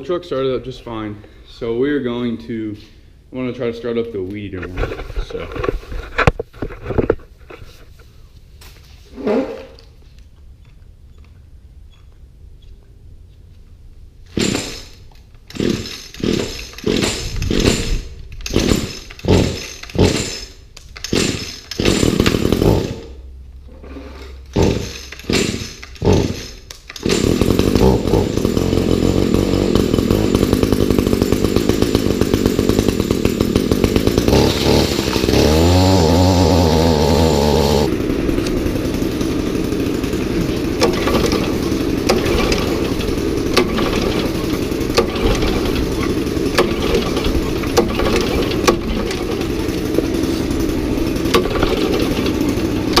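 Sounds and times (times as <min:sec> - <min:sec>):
string trimmer engine running: 0:14.3 - 0:23.3, 0:24.3 - 0:53.0
starter cord tugs: 0:14.3 - 0:53.0.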